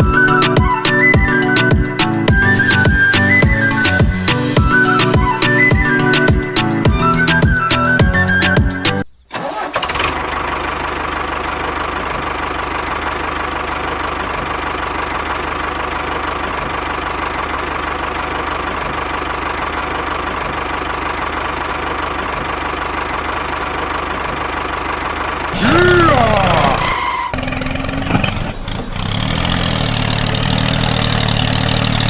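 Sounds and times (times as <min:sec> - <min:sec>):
music: 0:00.0 - 0:09.0.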